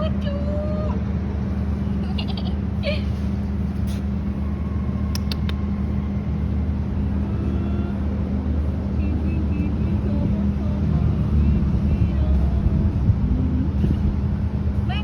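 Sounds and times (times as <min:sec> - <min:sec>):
low mechanical hum: 0:00.0 - 0:15.0
sharp clicks: 0:05.1 - 0:05.6.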